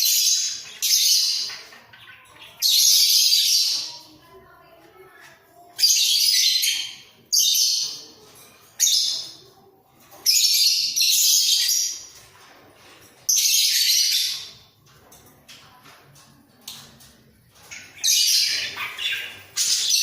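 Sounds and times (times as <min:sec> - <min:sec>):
budgerigars chattering: 0:17.7 - 0:20.0.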